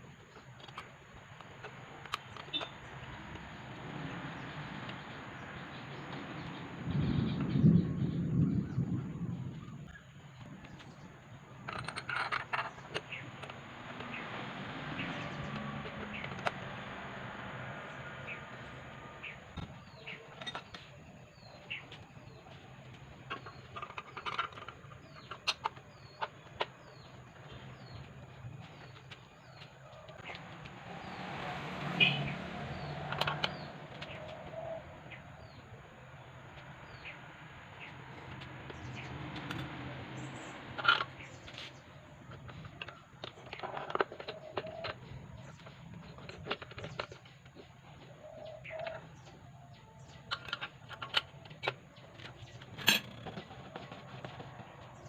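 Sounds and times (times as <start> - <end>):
bird chirping: 0.1 - 55.0
hand tools clicking and knocking: 11.6 - 14.2, 40.6 - 48.0, 50.2 - 55.0
pigeon cooing: 32.8 - 35.4, 44.3 - 45.0, 48.2 - 49.2.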